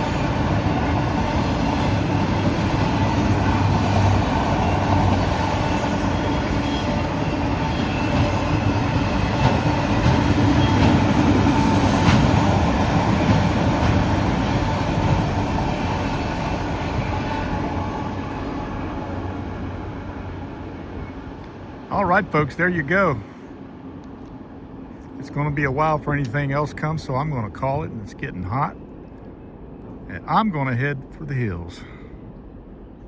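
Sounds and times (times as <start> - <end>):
freight train rumbling past: 0.0 - 33.0.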